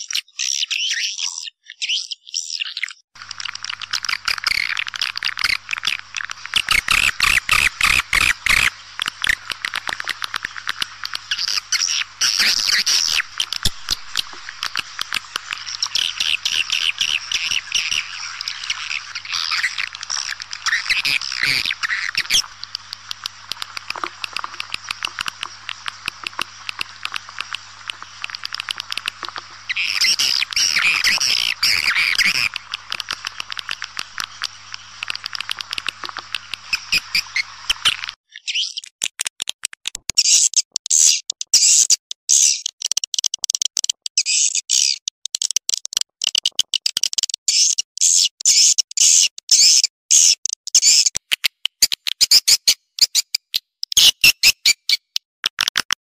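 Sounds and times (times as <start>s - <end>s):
dense twittering bursts: 0.0s - 38.8s
faint steady hum: 3.2s - 38.2s
swiftlet clicking chirps: 3.2s - 55.2s.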